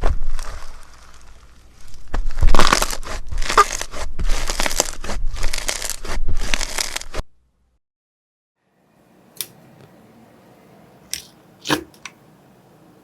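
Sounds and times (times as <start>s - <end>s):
slime squishing by hand: 0.0s - 7.2s.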